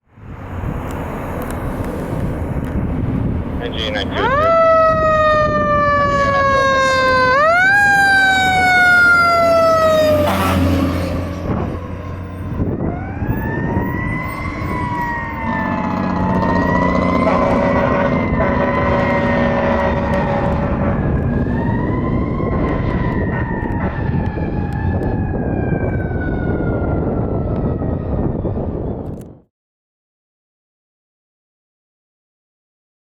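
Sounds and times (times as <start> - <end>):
truck engine rumble: 0.0 - 29.3
fire truck siren wailing: 0.2 - 29.4
air horns: 15.4 - 21.0.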